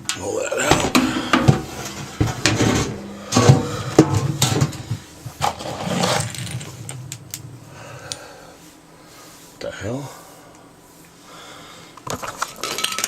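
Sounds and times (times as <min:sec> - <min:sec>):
sheet metal clanking: 0:00.6 - 0:08.3.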